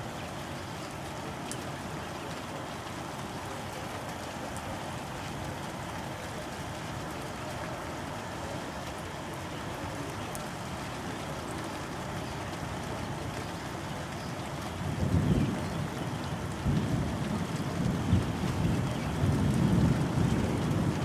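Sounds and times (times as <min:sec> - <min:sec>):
tornado roaring: 0:14.6 - 0:21.0.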